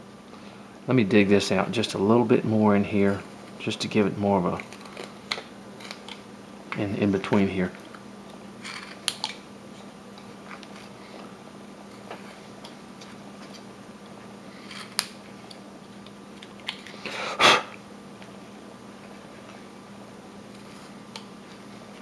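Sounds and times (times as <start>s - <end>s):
steady low hum: 0.0s - 22.0s
knife carving wood: 4.5s - 6.2s.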